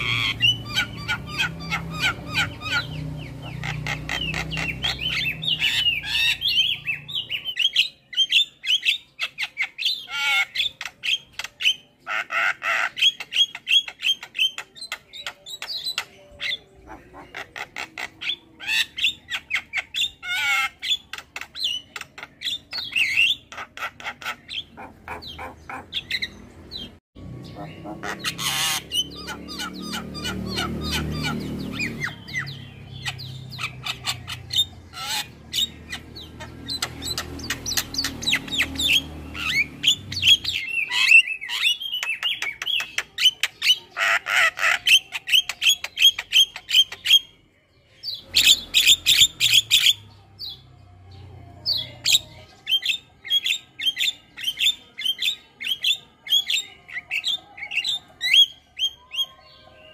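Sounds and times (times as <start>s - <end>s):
myna bird chattering calls: 0.0s - 7.7s, 8.7s - 47.2s.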